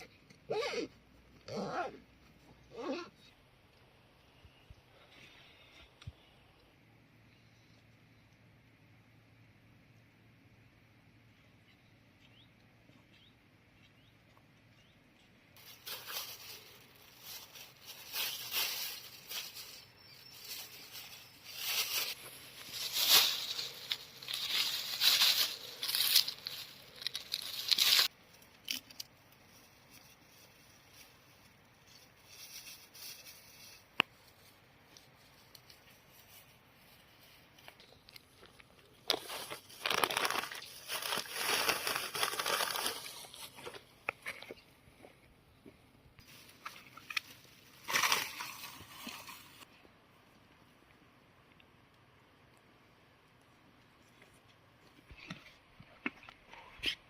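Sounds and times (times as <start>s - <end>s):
rustling and crinkling: 15.1s - 51.9s, 53.3s - 57.0s.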